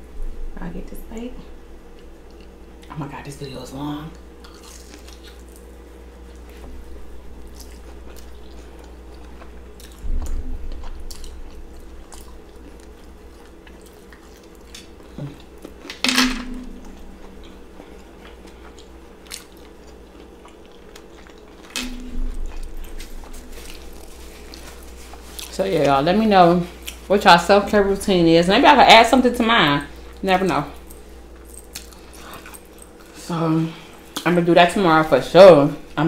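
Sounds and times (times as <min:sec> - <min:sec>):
low room hum: 0:00.0 - 0:36.0
crunchy chewing: 0:04.4 - 0:16.0, 0:16.8 - 0:25.6, 0:26.7 - 0:27.1, 0:30.8 - 0:33.2.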